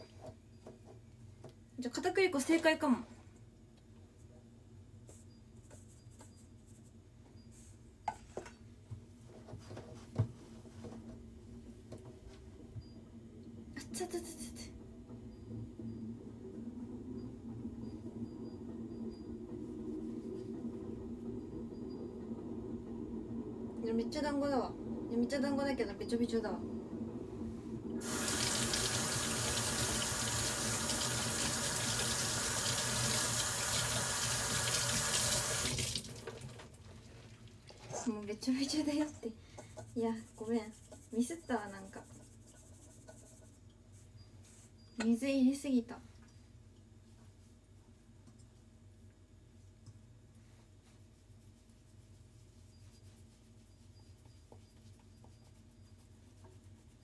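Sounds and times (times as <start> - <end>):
steady low hum: 11.4 - 30.8
tap running into sink: 28.0 - 36.6.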